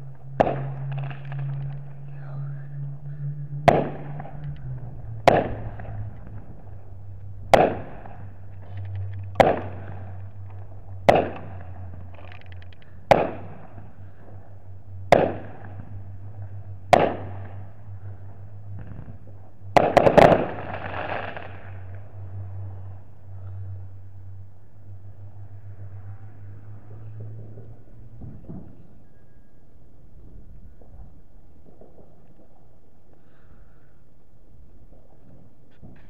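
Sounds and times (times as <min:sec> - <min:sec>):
rush of noise: 0:00.0 - 0:29.6
steady low hum: 0:00.0 - 0:36.0
fireworks bangs: 0:00.4 - 0:01.7, 0:03.6 - 0:04.4, 0:05.2 - 0:06.7, 0:07.4 - 0:08.4, 0:09.3 - 0:10.2, 0:11.0 - 0:11.6, 0:15.1 - 0:15.9, 0:16.9 - 0:17.6, 0:18.8 - 0:22.0.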